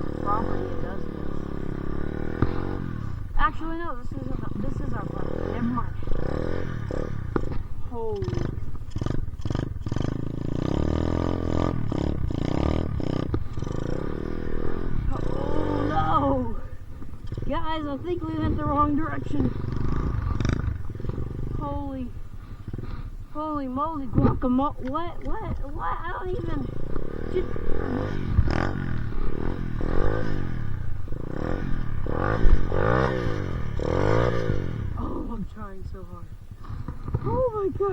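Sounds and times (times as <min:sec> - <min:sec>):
low thumps: 0:00.0 - 0:22.2
dirt bike engine revving: 0:00.0 - 0:37.9.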